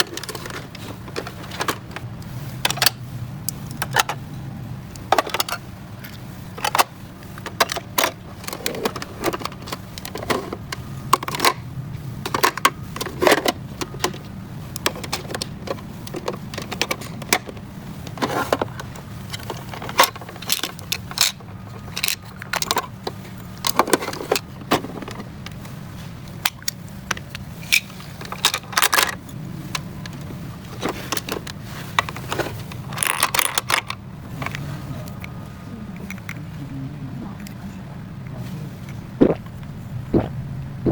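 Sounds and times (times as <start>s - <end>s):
steady low hum: 33.6s - 40.9s.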